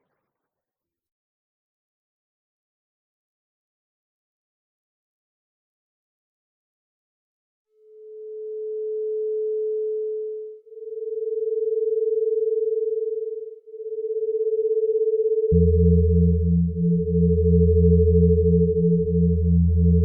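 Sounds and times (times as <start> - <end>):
electronic tone: 7.9 - 20.0
low hum: 15.3 - 20.0.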